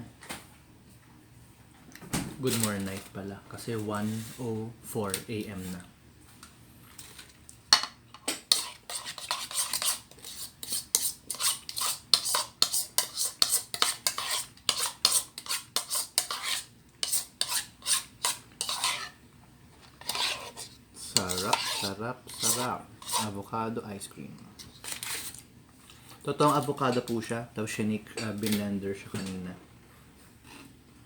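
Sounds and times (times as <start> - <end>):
spoon scraping a container: 8.4 - 19.2, 19.8 - 23.4, 24.6 - 27.1, 30.4 - 30.8.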